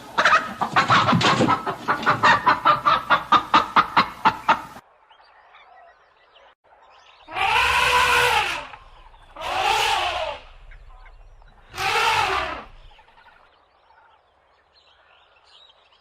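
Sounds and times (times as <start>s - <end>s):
animal calling rising and falling: 7.3s - 12.9s.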